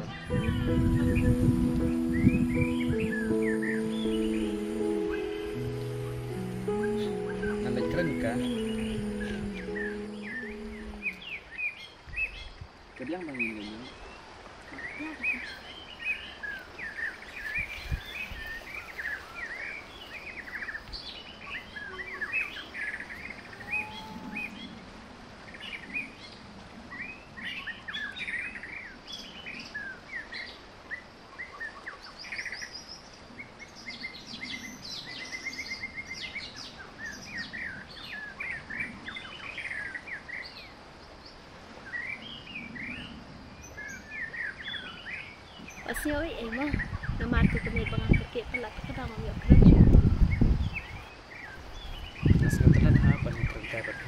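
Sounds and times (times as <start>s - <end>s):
small birds chirping: 0.0s - 24.8s, 27.0s - 54.0s.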